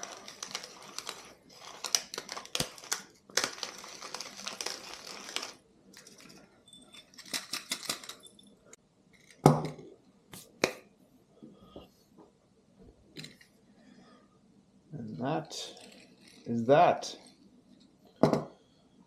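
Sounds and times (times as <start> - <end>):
peppermill grinding: 0.0 - 6.4, 15.5 - 17.4.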